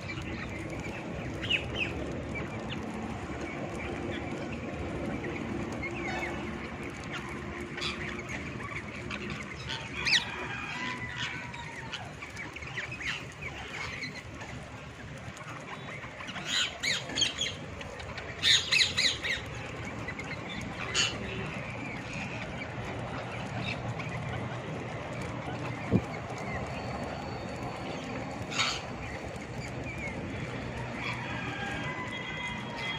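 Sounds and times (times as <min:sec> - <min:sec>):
parrots squawking: 0:28.5 - 0:28.9.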